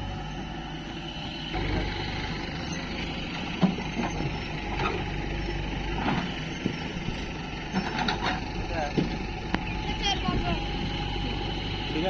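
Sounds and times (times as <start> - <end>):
heavy machine diesel engine running: 0.0 - 12.0.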